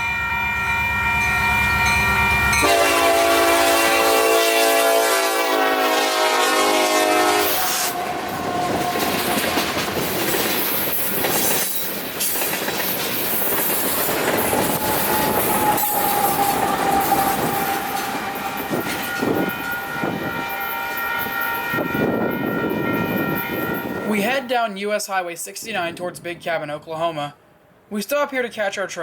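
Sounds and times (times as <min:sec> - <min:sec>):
high steady tones: 0:00.0 - 0:04.2, 0:13.4 - 0:24.8
train horn blast: 0:00.0 - 0:09.7, 0:14.4 - 0:24.3
train cars rumbling on rails: 0:00.5 - 0:24.3.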